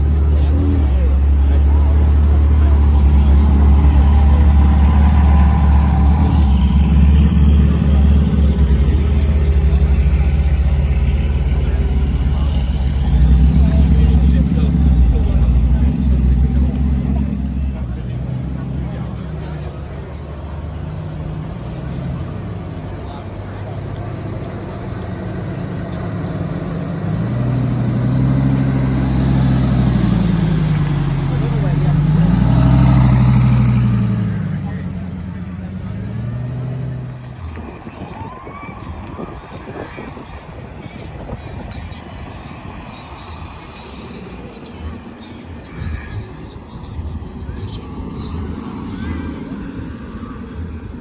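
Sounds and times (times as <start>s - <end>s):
car engine running: 0.0s - 51.0s.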